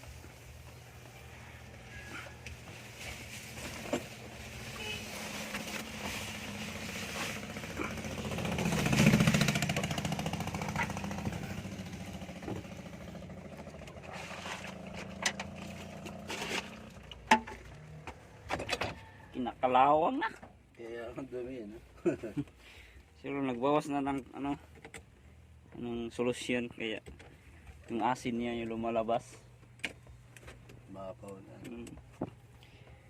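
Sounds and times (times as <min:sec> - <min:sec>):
steady low engine hum: 0:00.0 - 0:33.0
vehicle engine passing by: 0:04.2 - 0:18.1.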